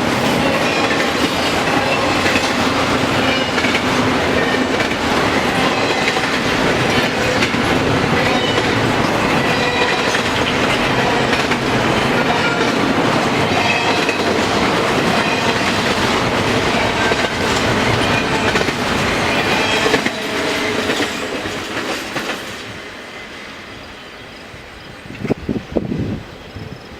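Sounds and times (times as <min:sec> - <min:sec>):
train wheels clicking over rail joints: 0:00.0 - 0:22.7.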